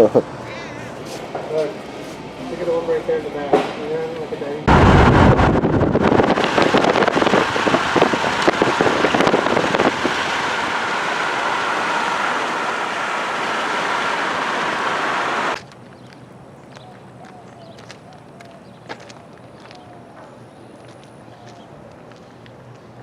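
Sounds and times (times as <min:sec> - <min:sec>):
wind: 0:00.0 - 0:23.0
rain: 0:04.7 - 0:15.6.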